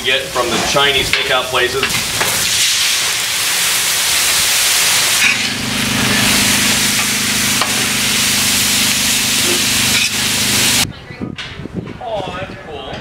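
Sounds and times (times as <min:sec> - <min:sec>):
food sizzling on a griddle: 0:00.0 - 0:10.8
steady low hum: 0:04.8 - 0:10.8.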